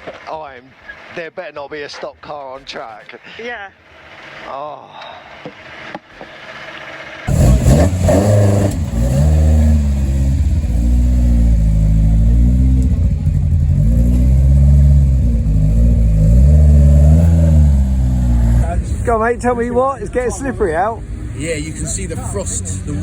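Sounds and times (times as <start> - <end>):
rally car engine revving: 5.7 - 19.4, 20.9 - 23.0.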